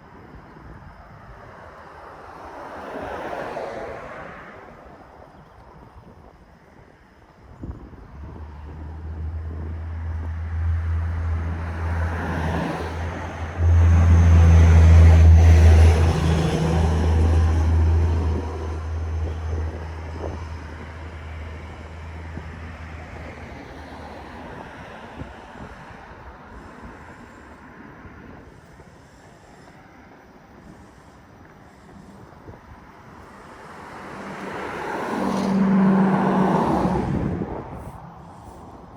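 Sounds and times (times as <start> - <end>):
vehicle passing by rumble: 7.9 - 25.5, 33.6 - 38.9.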